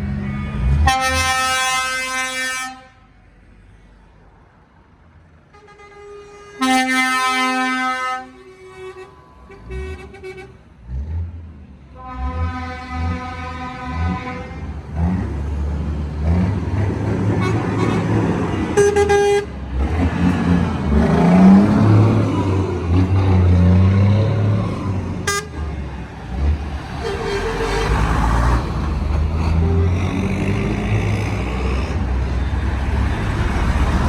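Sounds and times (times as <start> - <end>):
truck horn blasts: 0.1 - 3.1, 5.5 - 10.6, 12.0 - 15.1, 17.3 - 20.0, 25.2 - 26.0, 26.7 - 31.7
truck engines revving: 6.6 - 34.0.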